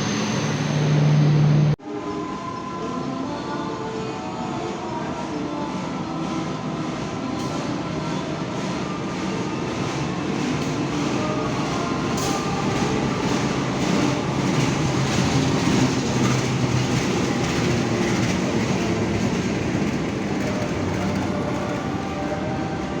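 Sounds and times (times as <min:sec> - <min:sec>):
train rumbling past on rails: 0:00.0 - 0:02.8, 0:03.8 - 0:23.0.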